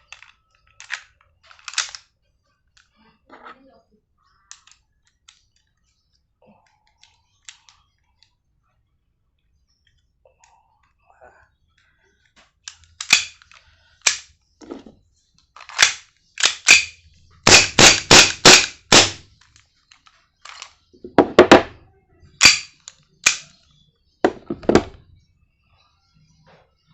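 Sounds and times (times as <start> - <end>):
pistol slide clacking: 0.1 - 2.0, 12.7 - 14.3, 15.6 - 19.2, 22.4 - 23.5.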